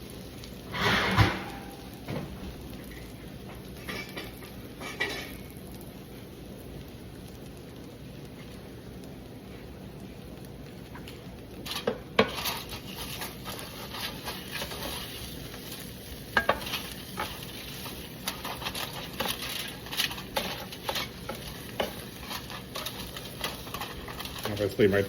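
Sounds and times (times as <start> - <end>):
food sizzling in a pan: 0.0 - 25.0
metal utensil scraping a pan: 0.7 - 1.9, 11.7 - 25.0.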